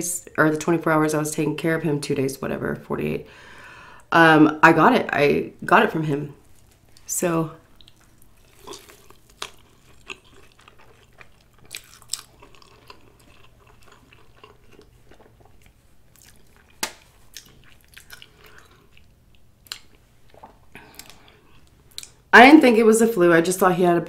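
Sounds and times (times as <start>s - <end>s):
close-miked chewing: 6.4s - 22.2s.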